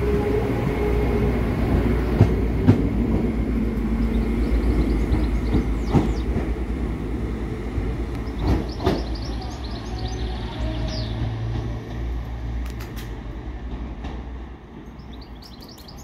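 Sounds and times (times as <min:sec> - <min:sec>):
train low rumble: 0:00.0 - 0:16.0.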